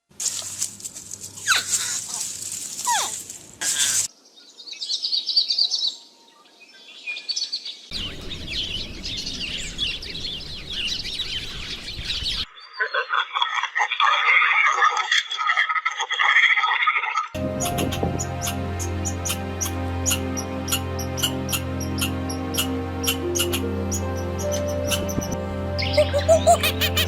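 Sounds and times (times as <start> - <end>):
birds chirping and singing: 3.9 - 13.2, 17.4 - 27.0.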